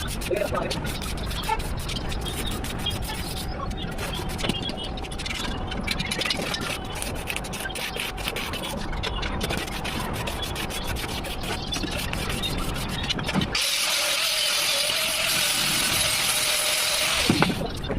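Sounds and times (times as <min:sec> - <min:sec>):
angle grinder grinding steel: 0:06.3 - 0:17.7.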